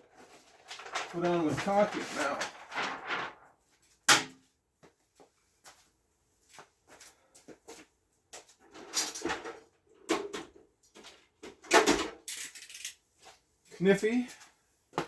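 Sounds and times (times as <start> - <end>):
rustling: 0.1 - 3.8.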